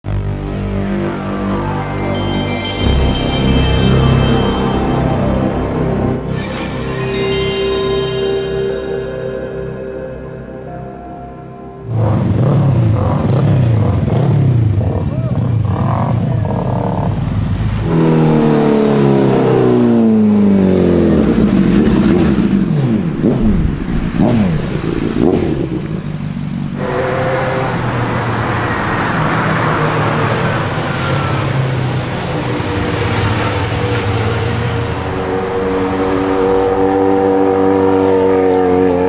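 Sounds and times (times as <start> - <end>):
motorcycle engines revving and passing: 11.9 - 39.0.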